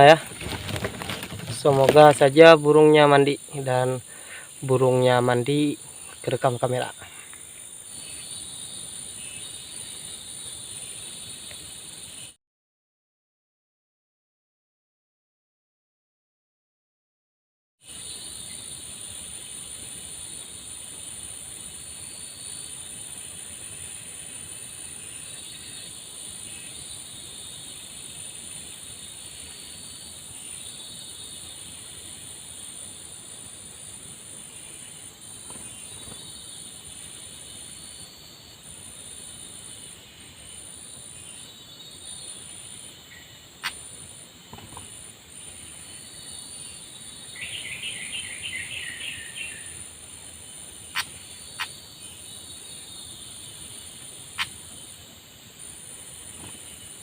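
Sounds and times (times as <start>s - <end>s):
bird calls: 0.0s - 12.4s, 34.4s - 55.1s
high insect drone: 0.0s - 12.4s, 17.8s - 57.0s.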